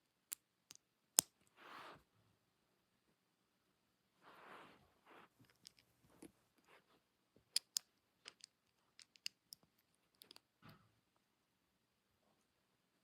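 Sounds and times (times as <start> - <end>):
plastic pieces clicking together: 7.5 - 10.4.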